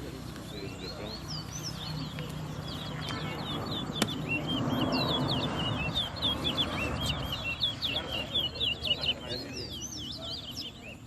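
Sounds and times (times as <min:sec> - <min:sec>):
murmur of voices: 0:00.0 - 0:11.0
finch singing whistled notes: 0:00.1 - 0:11.0.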